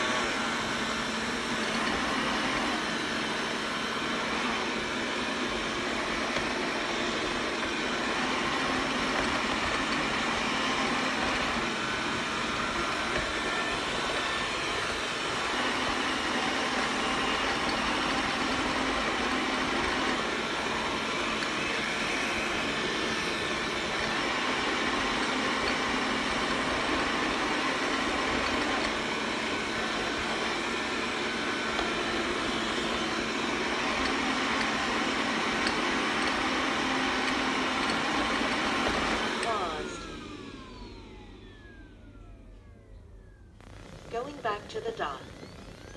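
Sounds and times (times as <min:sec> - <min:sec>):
robot vacuum whirring: 0:00.0 - 0:45.9.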